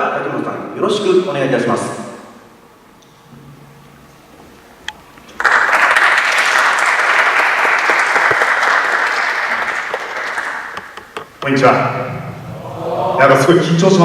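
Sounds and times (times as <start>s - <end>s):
audience applauding: 5.4s - 11.2s.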